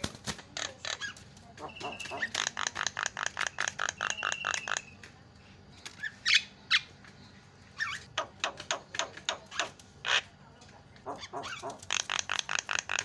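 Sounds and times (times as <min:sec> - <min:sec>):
bird chattering: 0:00.0 - 0:05.1, 0:05.8 - 0:07.0, 0:07.7 - 0:13.0
bird harsh squawks: 0:00.6 - 0:05.0, 0:11.0 - 0:13.0.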